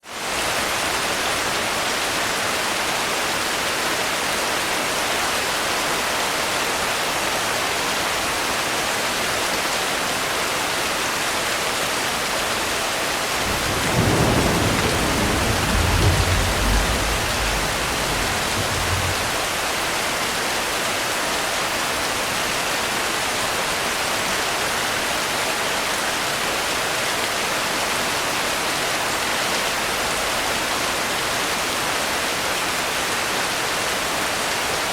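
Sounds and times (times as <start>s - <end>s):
heavy rain: 0.0s - 34.9s
thunder rumbling: 13.3s - 20.0s.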